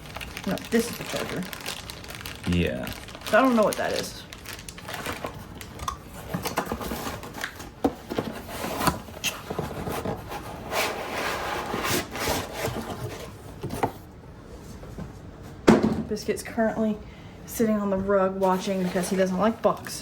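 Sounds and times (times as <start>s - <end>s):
cardboard rubbing and sliding: 6.7s - 14.0s, 18.4s - 19.7s.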